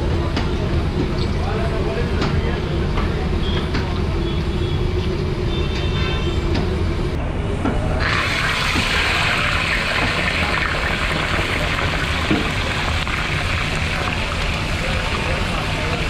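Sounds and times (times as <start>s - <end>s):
food sizzling in a wok: 8.0s - 16.0s.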